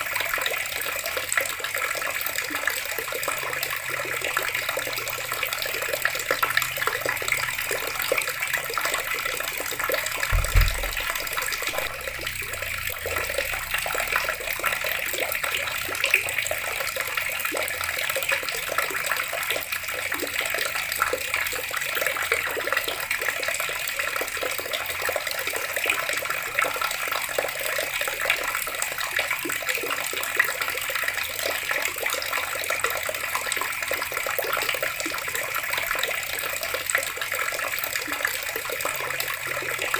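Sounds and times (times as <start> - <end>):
water running from a tap: 0.0 - 39.9
low thump: 10.3 - 13.2.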